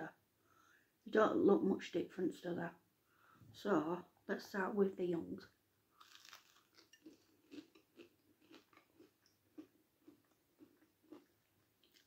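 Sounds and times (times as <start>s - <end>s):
biting into crumbed fishcake: 6.0s - 12.0s
quiet chewing: 6.0s - 12.0s.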